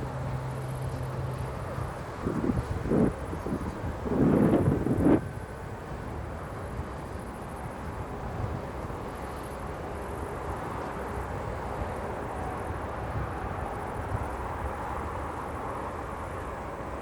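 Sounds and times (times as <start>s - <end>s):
distant jet engines rumbling: 0.0s - 17.0s.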